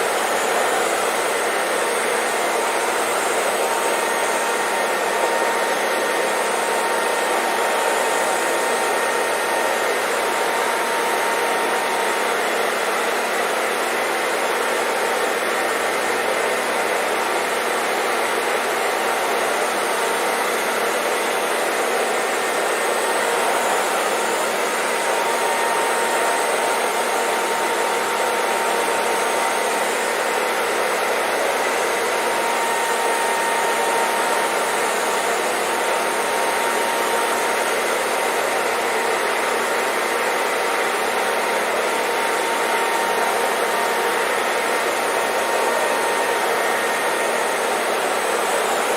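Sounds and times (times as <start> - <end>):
hair dryer running: 0.0 - 48.9.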